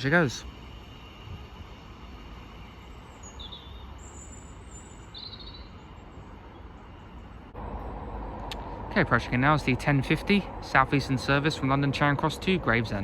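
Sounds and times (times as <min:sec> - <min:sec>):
high-pitched bird chirps: 0:03.2 - 0:05.8
low rumble: 0:07.5 - 0:13.0.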